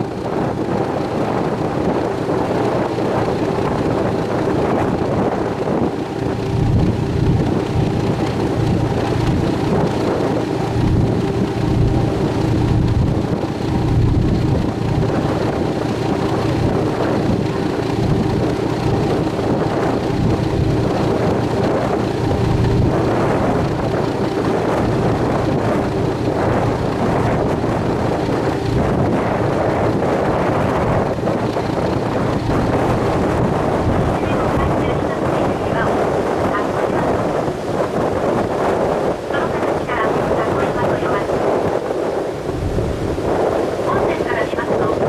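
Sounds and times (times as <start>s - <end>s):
boat engine humming: 0.0s - 45.0s
wind rumbling on microphone: 0.0s - 45.0s.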